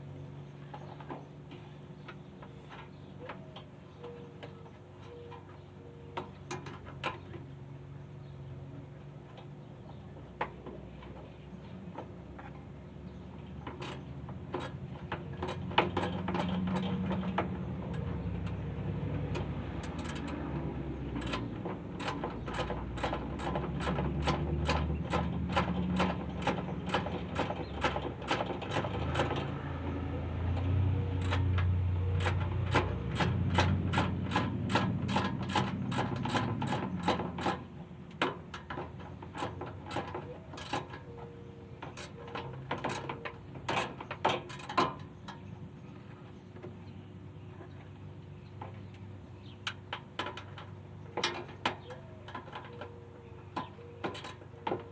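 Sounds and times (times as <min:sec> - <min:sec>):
ratchet wrench clicking: 0:19.4 - 0:20.4, 0:21.2 - 0:29.3, 0:31.2 - 0:37.6.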